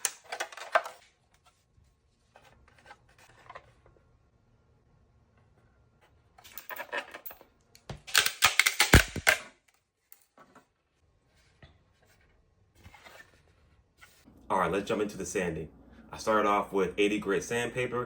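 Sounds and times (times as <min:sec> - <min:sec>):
hard objects clicking and rattling: 0:00.0 - 0:01.0, 0:06.4 - 0:09.5.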